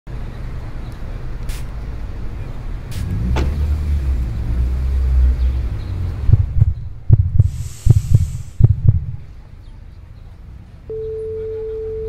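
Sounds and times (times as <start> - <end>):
car engine rumbling: 0.1 - 12.0.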